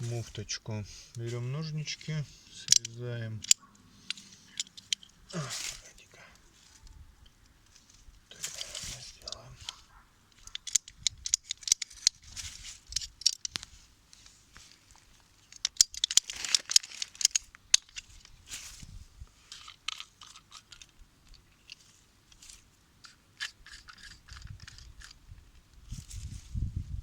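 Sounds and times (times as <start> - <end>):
plastic parts clicking: 1.9 - 5.4, 8.4 - 13.7, 15.4 - 18.4, 19.5 - 21.8, 23.0 - 25.2.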